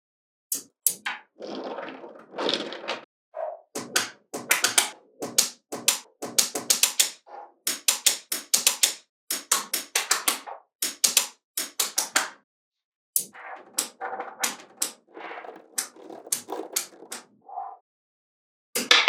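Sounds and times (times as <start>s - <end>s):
magnetic balls clicking together: 3.8s - 12.3s, 13.2s - 17.2s.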